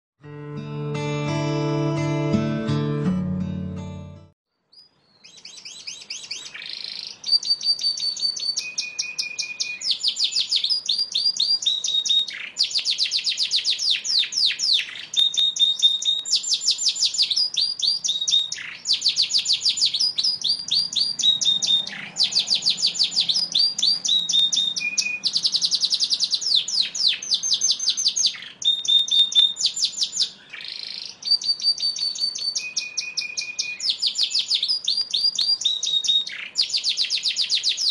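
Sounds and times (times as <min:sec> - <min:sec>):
canary singing trills: 0:04.5 - 0:37.9.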